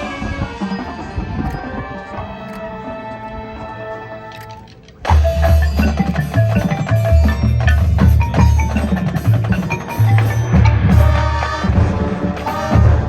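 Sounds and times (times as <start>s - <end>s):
marching band playing: 0.0s - 13.0s
percussion struck notes: 5.0s - 13.0s.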